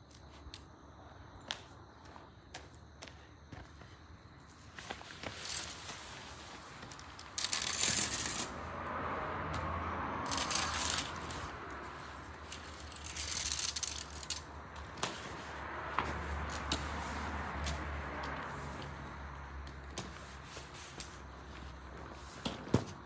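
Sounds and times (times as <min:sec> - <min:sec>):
objects rattling and rustling: 0:04.8 - 0:08.5.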